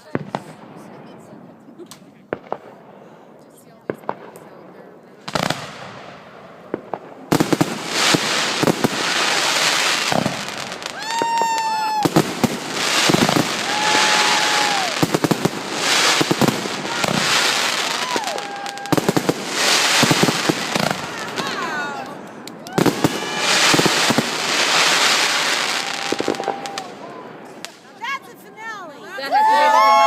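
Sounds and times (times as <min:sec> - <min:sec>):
fireworks crackling and banging: 0:00.0 - 0:29.0
whistling fireworks shrieking: 0:07.3 - 0:27.8.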